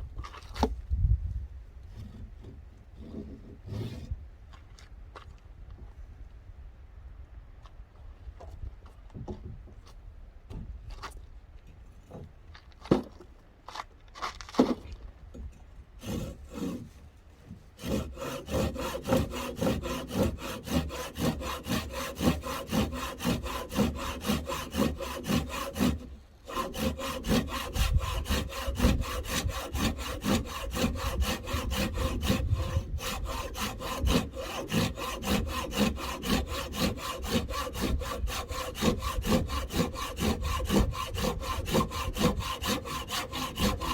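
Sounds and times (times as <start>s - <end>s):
hand saw cutting wood: 1.9s - 4.2s, 16.0s - 43.9s.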